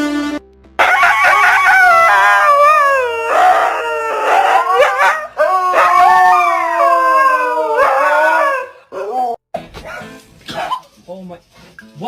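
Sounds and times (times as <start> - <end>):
dog howling: 1.1 - 9.4.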